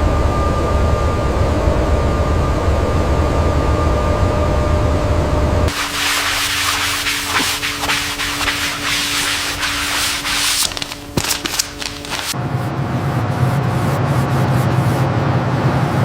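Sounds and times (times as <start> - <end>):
sanding scratchy hiss: 5.7 - 12.4
sharp scrapes: 5.7 - 12.4.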